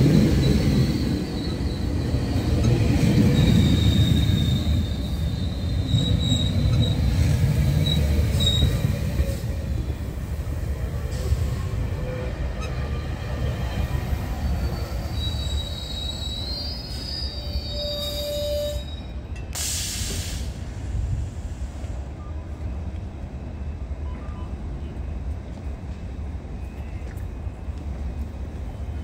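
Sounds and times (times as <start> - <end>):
train rumbling: 0.0 - 29.0
wheels and brakes squealing: 0.1 - 9.8, 11.0 - 20.2
short hiss: 19.5 - 22.0.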